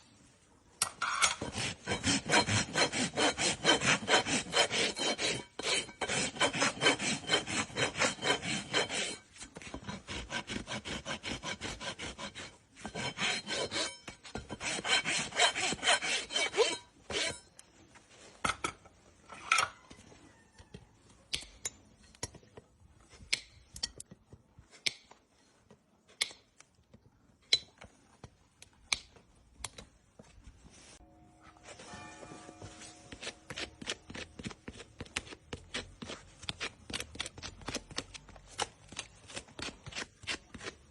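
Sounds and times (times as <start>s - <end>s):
hoof rasp filing: 1.1s - 17.5s, 31.9s - 37.6s.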